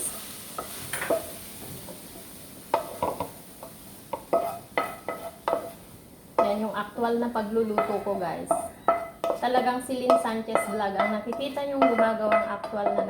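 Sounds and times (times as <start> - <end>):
faint sizzle: 0.0 - 13.0
metal spatula scraping a pan: 4.2 - 5.8, 7.7 - 13.0.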